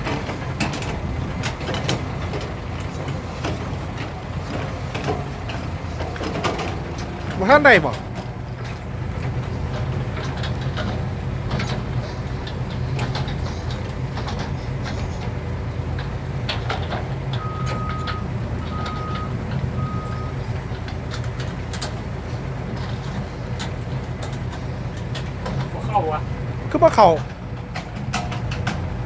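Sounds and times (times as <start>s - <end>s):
diesel truck engine idling: 0.0s - 29.0s
reversing alarm beeps: 17.4s - 20.5s.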